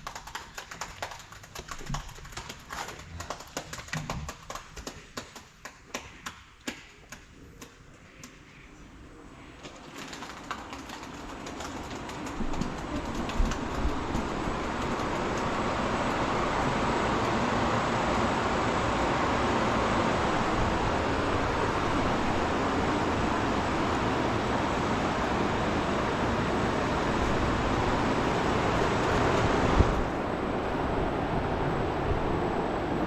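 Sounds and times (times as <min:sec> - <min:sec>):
tractor engine running: 0:00.0 - 0:05.6, 0:09.7 - 0:30.2
wind rumble on microphone: 0:11.3 - 0:33.0.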